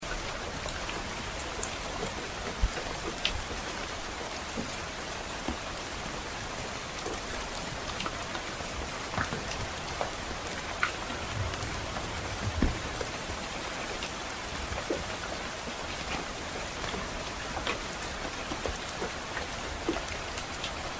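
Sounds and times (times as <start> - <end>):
soft rain hiss: 0.0 - 20.9.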